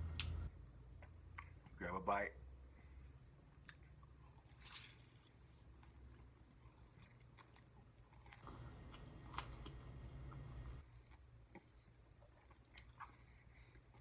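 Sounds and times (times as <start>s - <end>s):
low hum: 0.0s - 1.3s
person chewing: 3.4s - 14.0s.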